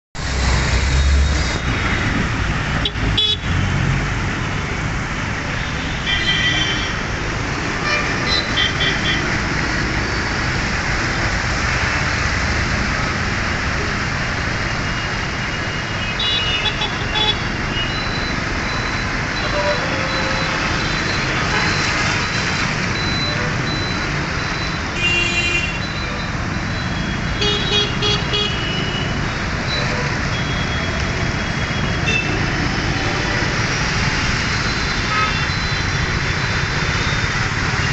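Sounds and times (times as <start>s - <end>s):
vehicle horns tooting: 35.1s - 35.5s.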